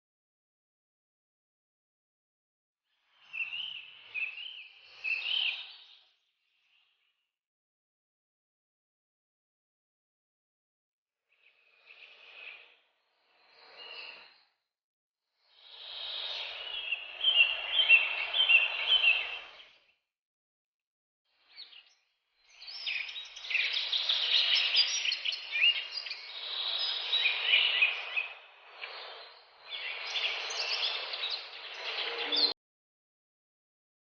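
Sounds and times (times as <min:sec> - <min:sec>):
finches chirping: 0:03.1 - 0:06.1, 0:15.5 - 0:19.8, 0:21.5 - 0:32.5.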